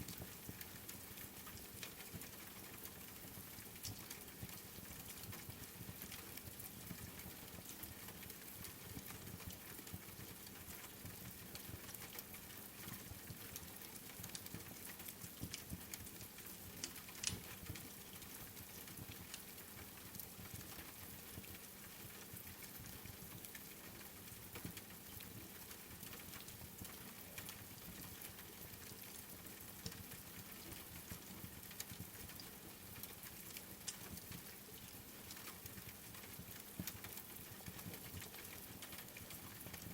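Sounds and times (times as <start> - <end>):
rain pattering: 0.0 - 39.9
wood fire crackling: 14.1 - 17.5.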